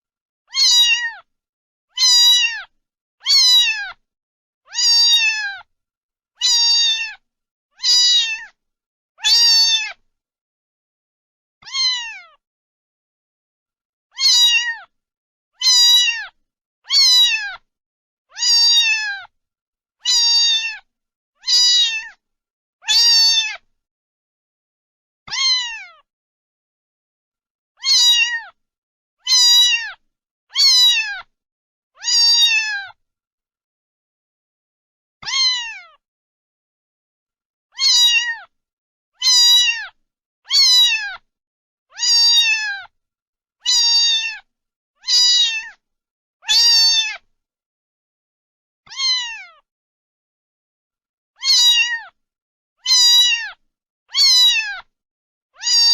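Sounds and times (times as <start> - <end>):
cat meowing: 0.5 - 1.3, 1.9 - 4.0, 4.7 - 5.7, 6.4 - 7.2, 7.8 - 8.6, 9.2 - 10.0, 11.6 - 12.4, 14.1 - 14.9, 15.6 - 17.7, 18.3 - 19.3, 20.0 - 22.2, 22.8 - 23.7, 25.3 - 26.1, 27.8 - 28.6, 29.2 - 31.3, 32.0 - 33.0, 35.2 - 36.0, 37.7 - 38.5, 39.2 - 41.2, 41.9 - 42.9, 43.6 - 45.8, 46.4 - 47.2, 48.9 - 49.7, 51.4 - 52.2, 52.8 - 54.9, 55.6 - 55.9.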